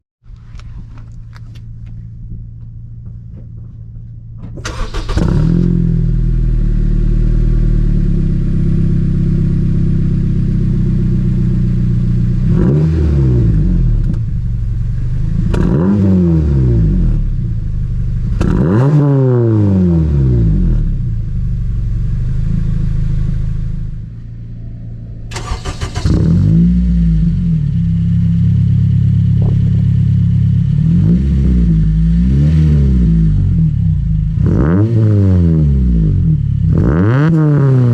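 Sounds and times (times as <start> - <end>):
car engine starting and idling: 0.3 - 12.7, 20.4 - 32.3
engine revving: 4.6 - 9.9, 12.3 - 14.2, 15.0 - 17.5, 18.2 - 21.2, 25.2 - 37.9.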